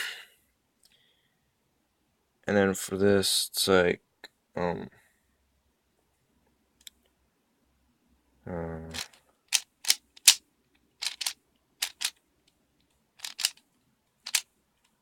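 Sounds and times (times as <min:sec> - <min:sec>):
plastic puzzle cube clacks: 0:08.9 - 0:10.4, 0:11.0 - 0:12.2, 0:13.2 - 0:13.6, 0:14.2 - 0:15.0.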